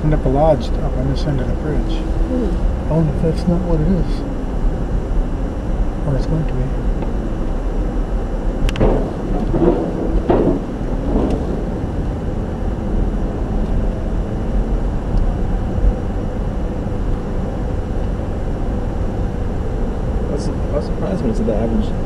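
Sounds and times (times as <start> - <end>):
car road noise and engine rumble: 0.0 - 22.0
knocks: 8.8 - 11.5.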